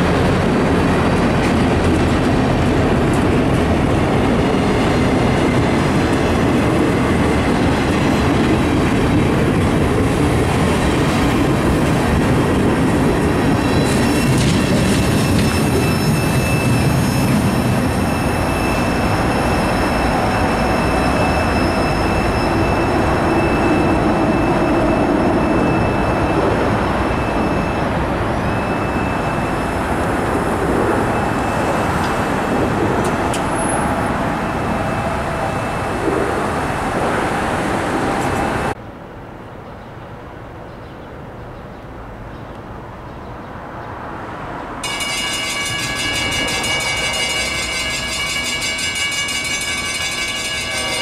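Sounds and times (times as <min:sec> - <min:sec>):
freight train rumbling past: 0:00.0 - 0:38.8, 0:43.6 - 0:51.0
crossing signal bell ringing: 0:13.3 - 0:32.8, 0:44.8 - 0:51.0.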